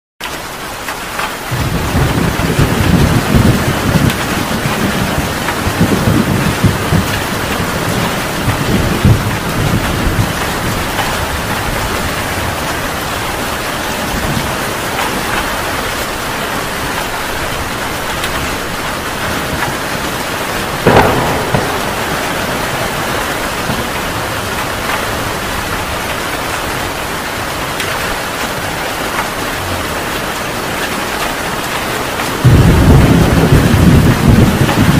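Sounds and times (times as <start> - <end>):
heavy rain falling: 0.2 - 34.9
sharp thunderclap: 1.5 - 11.9, 20.7 - 26.5, 32.4 - 34.9
thunder rumbling: 1.5 - 28.1, 32.4 - 34.9.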